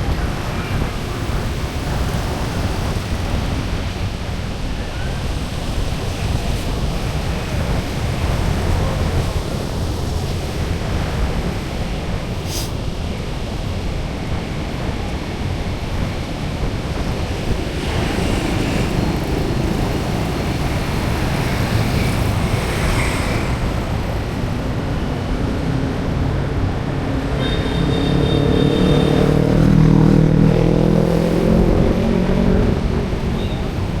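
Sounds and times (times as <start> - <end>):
street traffic noise: 0.0 - 34.0
vehicle engine passing by: 27.8 - 34.0.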